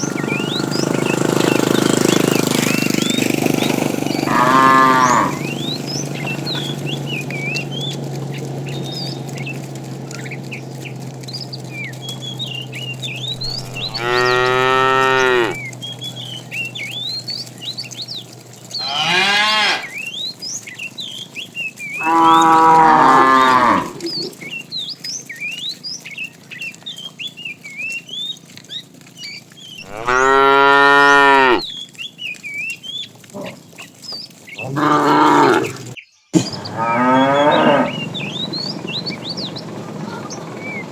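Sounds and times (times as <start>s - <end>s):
small birds chirping: 0.0s - 40.9s
cattle mooing: 3.6s - 8.0s, 13.1s - 15.8s, 18.3s - 20.2s, 21.9s - 24.4s, 29.8s - 31.7s, 34.6s - 40.8s
low steady hum: 4.2s - 18.9s.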